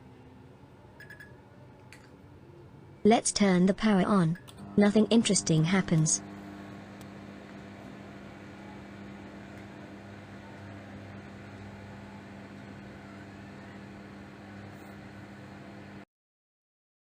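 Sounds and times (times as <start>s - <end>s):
microwave oven humming: 4.3s - 16.1s.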